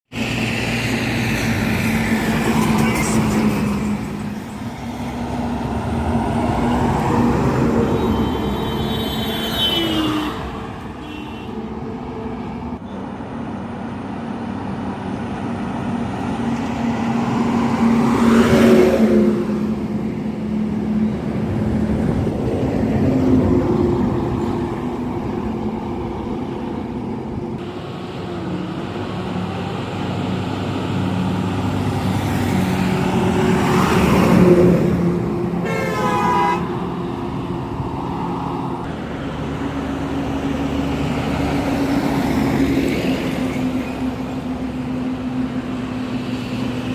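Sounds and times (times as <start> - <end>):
passing vehicles rushing: 0.1 - 46.9
horn blast: 35.6 - 36.8.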